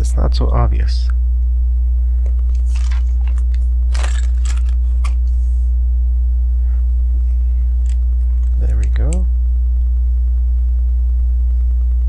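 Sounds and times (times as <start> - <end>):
loud mains hum: 0.0 - 12.0
plastic bricks clicking and rustling: 2.5 - 5.2, 7.8 - 9.0.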